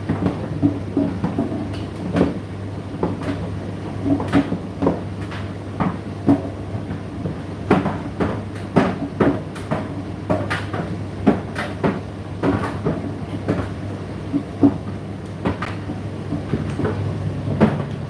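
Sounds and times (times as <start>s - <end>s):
tumble dryer motor hum: 10.9s - 18.0s.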